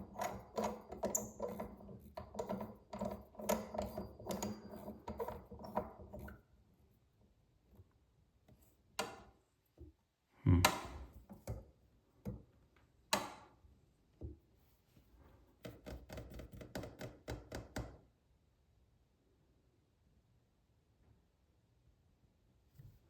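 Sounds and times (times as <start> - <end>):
faucet parts clicking and knocking: 0.0 - 6.4.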